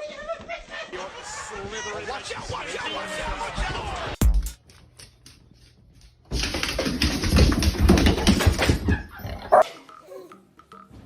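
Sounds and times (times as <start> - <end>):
dog barking and whimpering: 9.1 - 10.3
dog high cry: 9.3 - 10.3.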